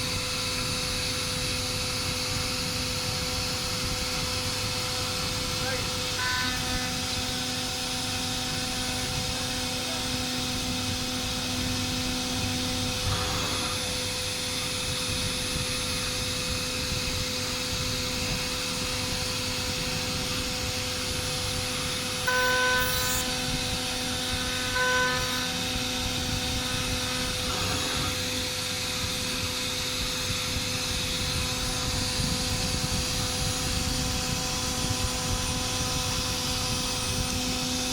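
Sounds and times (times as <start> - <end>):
cnc machine hiss and whine: 0.0 - 37.9
short high-pitched tones: 6.2 - 7.1, 22.3 - 23.5, 24.4 - 25.9.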